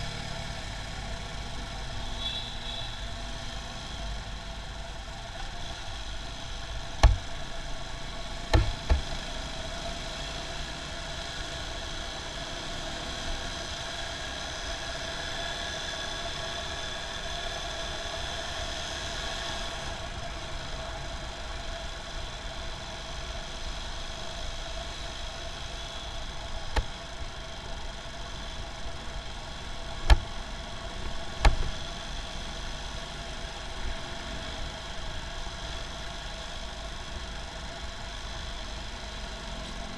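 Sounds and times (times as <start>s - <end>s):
motorcycle engine hum: 0.0s - 17.8s, 19.8s - 39.9s
road and wind noise: 0.0s - 39.9s
sharp knocks: 7.0s - 7.4s, 8.5s - 9.2s.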